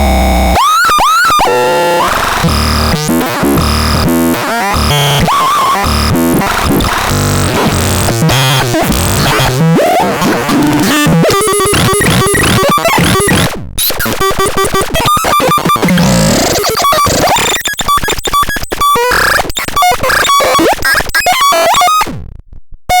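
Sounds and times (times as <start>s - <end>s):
harsh noisy synthesizer tones: 0.0s - 22.2s
stuttering synthesizer bleeps: 10.6s - 21.9s.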